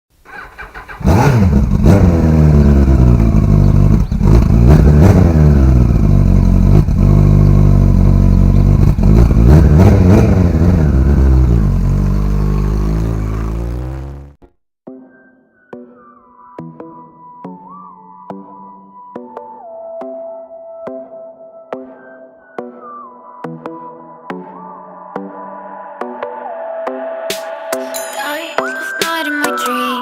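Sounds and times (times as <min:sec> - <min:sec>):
motorcycle engine revving: 0:00.3 - 0:14.4.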